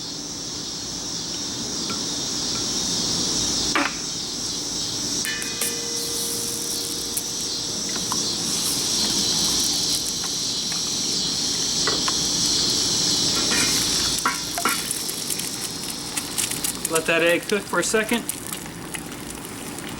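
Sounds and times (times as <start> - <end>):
egg sizzling in hot oil: 5.3 - 19.9.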